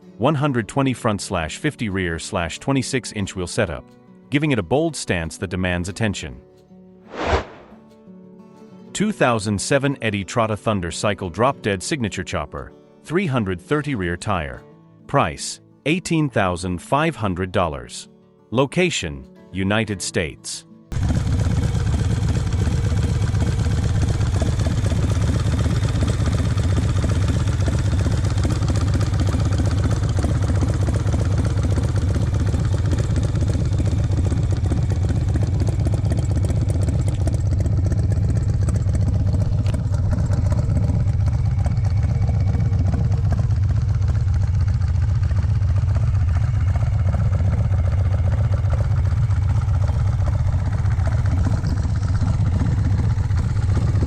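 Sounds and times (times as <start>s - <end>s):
motorcycle engine idling: 20.9s - 54.0s.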